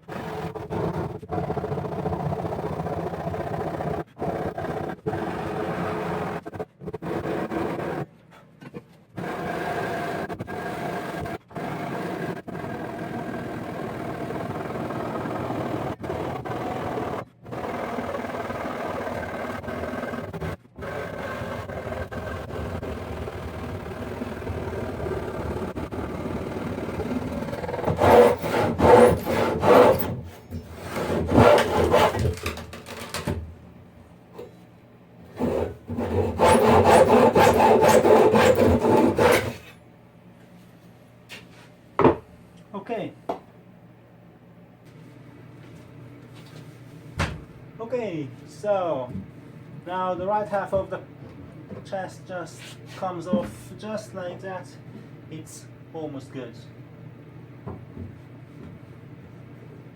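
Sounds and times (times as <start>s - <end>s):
handsaw cutting wood: 20.2s - 32.6s, 35.4s - 39.7s.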